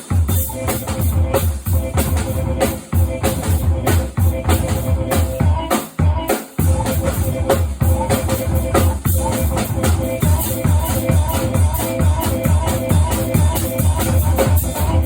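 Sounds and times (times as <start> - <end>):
experimental noise music: 0.0 - 15.0
fast bass drum beat: 0.0 - 15.0.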